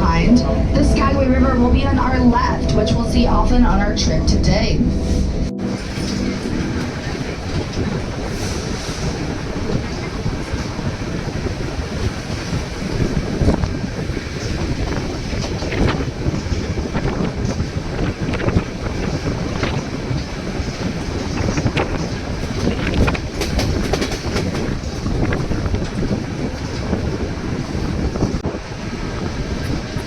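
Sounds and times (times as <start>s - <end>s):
train cars rumbling: 0.0s - 30.0s
wind buffeting microphone: 0.0s - 30.0s
wheels knocking on track: 5.8s - 28.5s.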